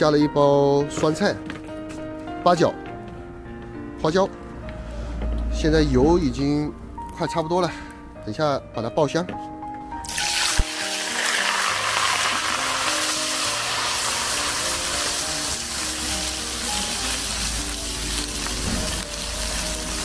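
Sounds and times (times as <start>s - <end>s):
background music: 0.0s - 20.0s
vegetables sizzling in hot oil: 10.1s - 20.0s.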